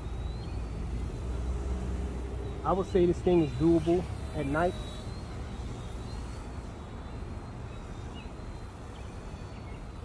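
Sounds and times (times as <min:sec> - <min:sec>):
rc helicopter motor whine: 0:00.0 - 0:10.0.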